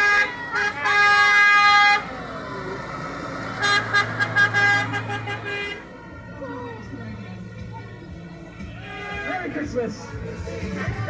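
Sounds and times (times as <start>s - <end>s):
tractor horn blasts and toots: 0.0s - 2.1s, 3.5s - 5.9s, 8.8s - 9.7s
engine running low: 0.0s - 8.8s.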